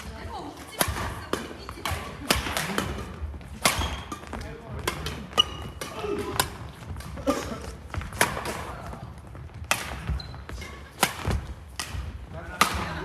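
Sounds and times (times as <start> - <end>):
footfalls on hall floor: 0.0 - 13.0
racket hitting shuttlecock: 0.0 - 13.0.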